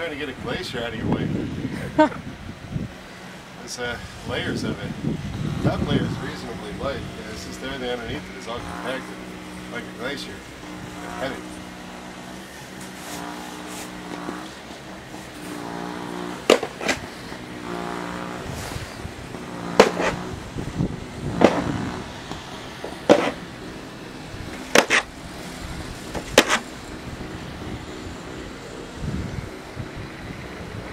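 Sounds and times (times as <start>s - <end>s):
droning hum: 0.0s - 30.9s
snow shovel scraping pavement: 5.7s - 26.9s.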